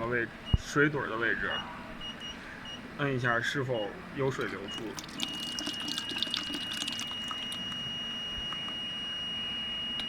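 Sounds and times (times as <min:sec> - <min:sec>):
water running and dripping: 0:04.8 - 0:07.6.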